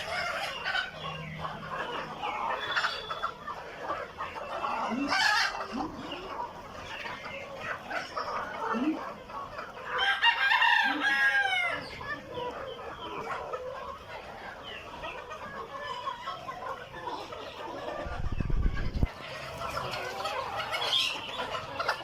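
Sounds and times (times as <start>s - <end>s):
hens clucking: 0.0s - 22.0s
rooster crowing: 10.0s - 11.8s.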